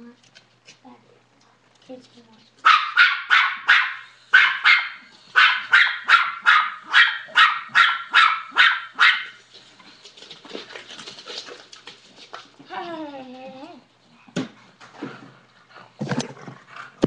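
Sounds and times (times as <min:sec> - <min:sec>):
faint shuffling and clicking: 0:00.0 - 0:02.7
dog barking: 0:02.6 - 0:09.4.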